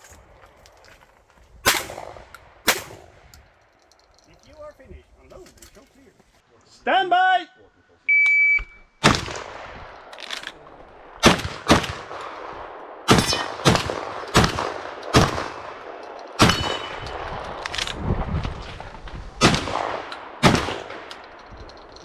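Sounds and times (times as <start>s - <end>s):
shotgun shots echoing: 1.6s - 3.6s, 9.0s - 17.4s, 19.4s - 21.2s
shot timer beep: 8.1s - 8.8s.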